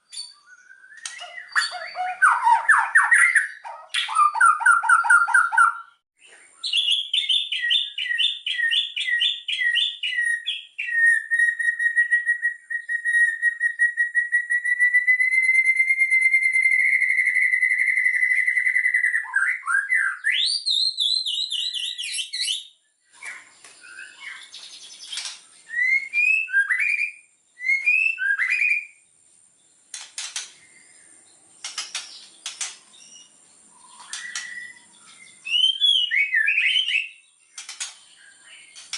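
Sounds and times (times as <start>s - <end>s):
bird whistles: 0.0s - 6.0s, 6.6s - 29.0s, 31.7s - 38.9s
songbird singing varied song: 0.0s - 38.9s
sharp clicks: 29.9s - 30.6s, 31.6s - 32.9s, 34.0s - 34.6s, 37.5s - 38.0s.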